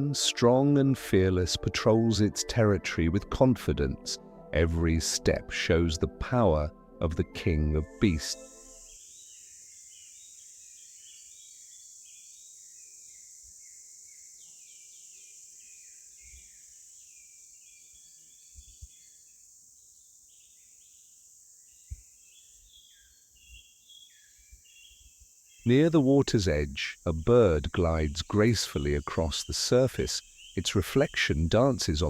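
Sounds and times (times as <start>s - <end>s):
bird chirps: 8.0s - 32.0s
high-pitched insect drone: 8.1s - 23.1s, 24.3s - 30.4s.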